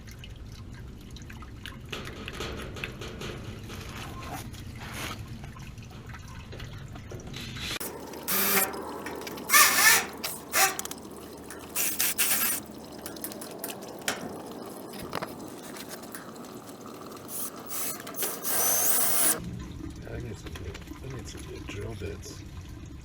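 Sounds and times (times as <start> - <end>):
water splashing and dripping: 0.0 - 23.0
hand tools scraping and knocking: 7.8 - 14.4, 17.2 - 19.4.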